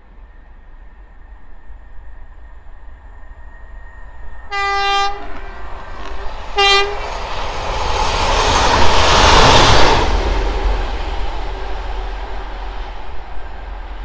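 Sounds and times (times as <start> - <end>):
train wheels rushing on rails: 0.0 - 14.0
train horn: 4.5 - 7.1.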